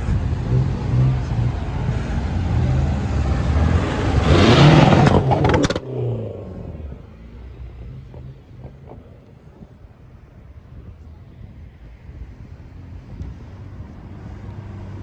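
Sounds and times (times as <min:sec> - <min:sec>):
car accelerating hard past: 0:00.0 - 0:07.1
engine running low: 0:00.0 - 0:15.0
exhaust cracks: 0:04.2 - 0:10.4.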